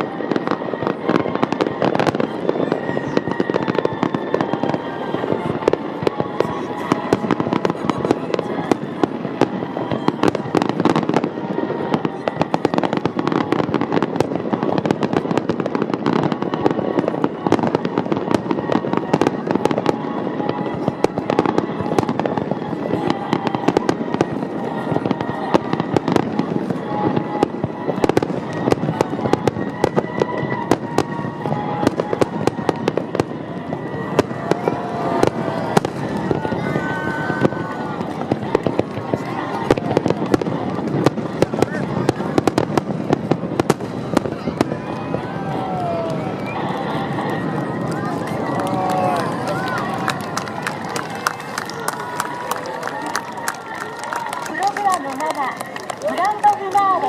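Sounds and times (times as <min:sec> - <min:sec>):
music playing: 0:00.0 - 0:42.6
fireworks bursting and crackling: 0:00.0 - 0:57.0.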